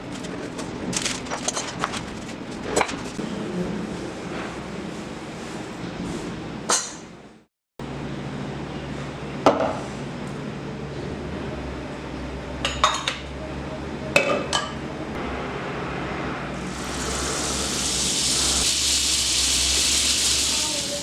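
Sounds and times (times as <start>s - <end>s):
steady hiss: 16.7s - 21.0s.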